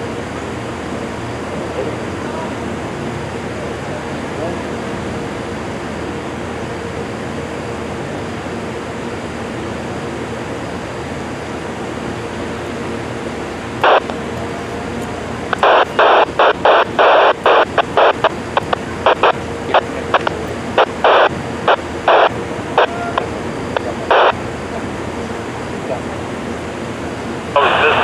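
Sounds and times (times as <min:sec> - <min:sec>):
steady background hiss: 0:10.9 - 0:28.0
radio scanner bursts: 0:13.7 - 0:24.6, 0:27.5 - 0:28.0.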